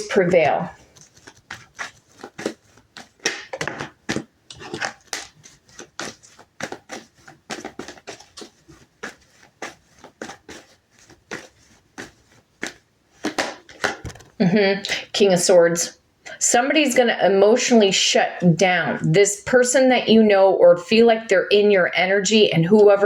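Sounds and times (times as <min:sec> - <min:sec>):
cards being shuffled: 0:00.0 - 0:15.1.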